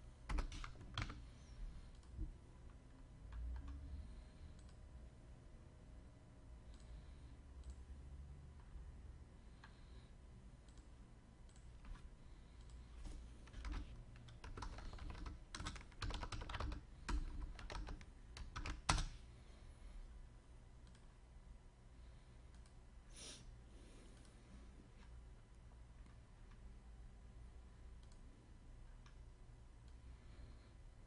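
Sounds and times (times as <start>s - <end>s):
computer keyboard key clicks: 13.5s - 19.1s.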